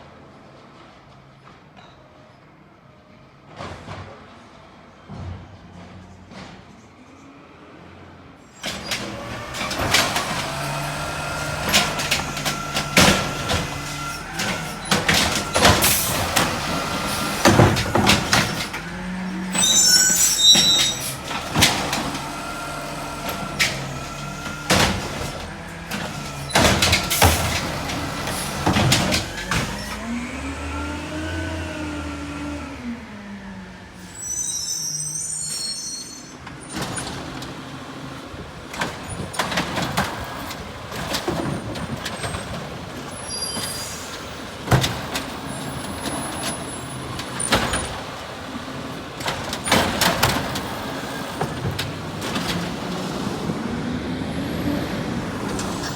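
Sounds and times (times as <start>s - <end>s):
truck engine running: 9.0s - 31.3s, 37.7s - 55.9s.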